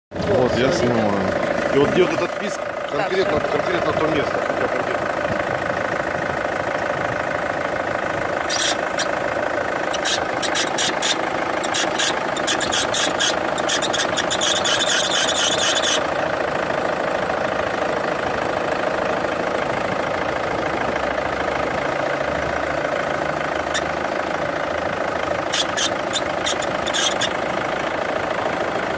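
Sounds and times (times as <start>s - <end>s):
car engine idling: 0.1s - 28.9s
high squeak of rapid ticks: 8.4s - 9.2s, 9.9s - 16.1s, 23.7s - 24.0s, 25.5s - 27.4s.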